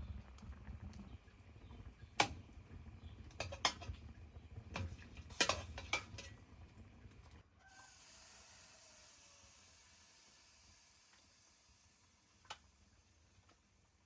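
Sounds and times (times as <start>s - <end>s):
utensils clinking against pots: 5.3s - 6.4s.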